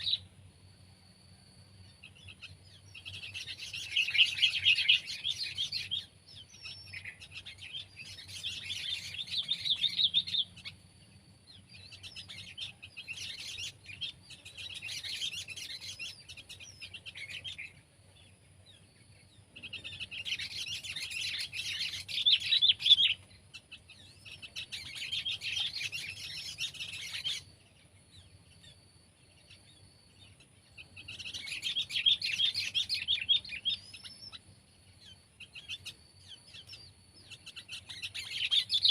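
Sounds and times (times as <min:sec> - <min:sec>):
bulbul chattering song: 0:02.0 - 0:10.8, 0:18.7 - 0:28.8, 0:29.4 - 0:38.9.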